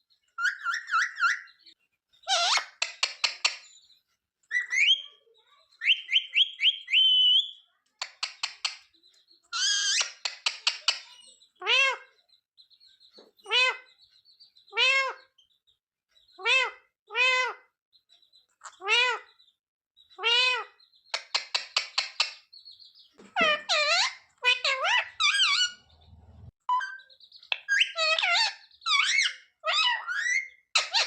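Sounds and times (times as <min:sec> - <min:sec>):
parrot squawks: 0:00.4 - 0:01.5, 0:02.2 - 0:02.9, 0:11.6 - 0:12.1, 0:13.5 - 0:13.9, 0:14.7 - 0:15.3, 0:16.4 - 0:17.7, 0:18.7 - 0:19.3, 0:20.2 - 0:21.6, 0:23.4 - 0:25.8, 0:26.7 - 0:31.0
parrot clicking chatter: 0:02.3 - 0:03.7, 0:08.0 - 0:08.9, 0:21.2 - 0:22.5.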